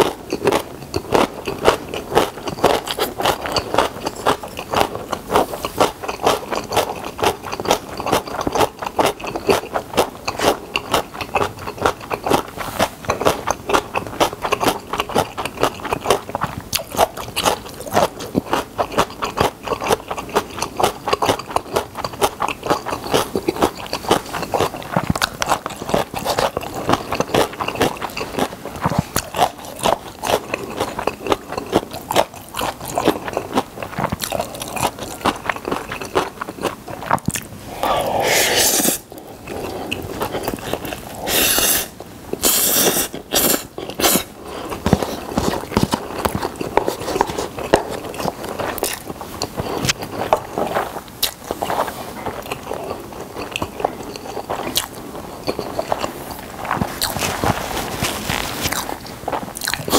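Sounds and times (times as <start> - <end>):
chewing noodles: 0.0 - 59.9.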